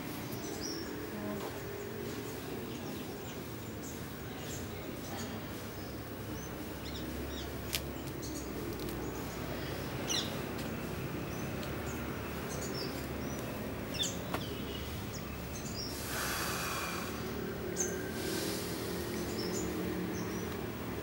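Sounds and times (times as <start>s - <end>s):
small birds chirping: 0.0s - 21.0s
brief rustling hiss: 18.2s - 19.3s.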